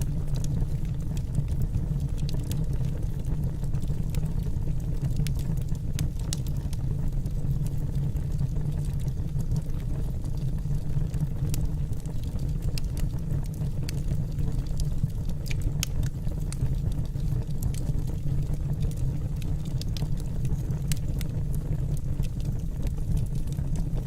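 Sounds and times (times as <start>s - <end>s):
logs crackling and popping: 0.0s - 24.0s
low rumble of flame: 0.0s - 24.0s.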